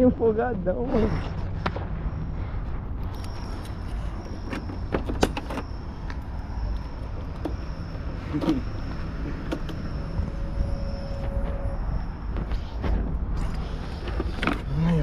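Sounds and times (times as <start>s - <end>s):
faint high whine: 0.0s - 15.0s
motor vehicle engine rumbling: 0.0s - 15.0s
sharp clicks and rattles: 3.0s - 10.0s.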